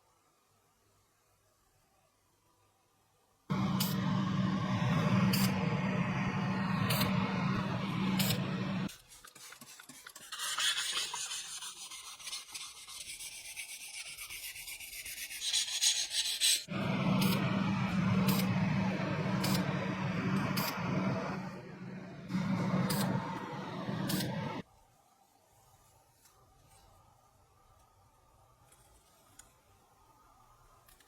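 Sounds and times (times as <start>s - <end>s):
steady hum: 3.5s - 8.9s, 16.7s - 24.6s.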